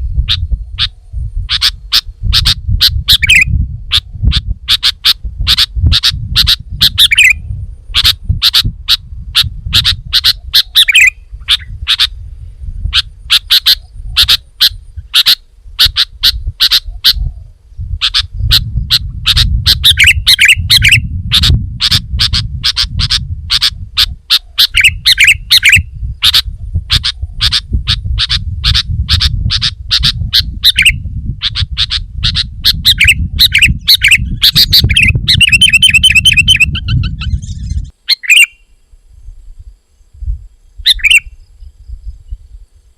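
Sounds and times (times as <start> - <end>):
bird singing sharp chirps: 4.7 - 8.7, 9.8 - 12.2, 29.5 - 39.4, 40.0 - 42.4.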